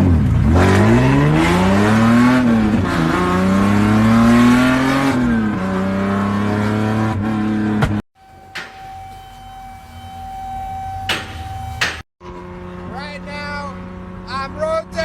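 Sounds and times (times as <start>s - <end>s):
car engine accelerating through gears: 0.0s - 8.0s.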